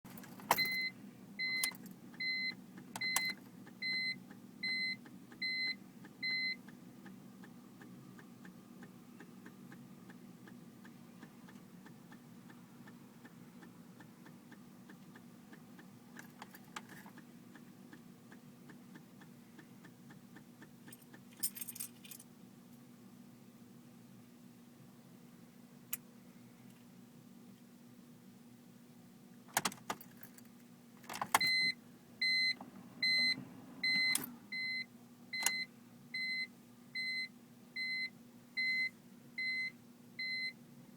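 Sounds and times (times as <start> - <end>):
low steady hum: 0.1 - 40.9
electronic warning beeps: 0.6 - 6.6, 31.4 - 40.6
keys clicking and jangling: 20.9 - 22.3.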